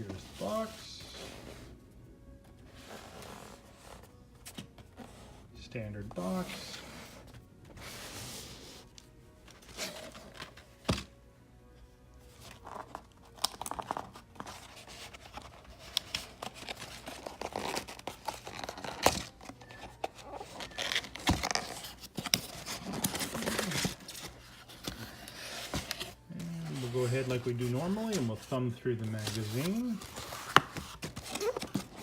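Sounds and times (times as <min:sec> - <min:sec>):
packaging tearing and crinkling: 0:20.6 - 0:27.0.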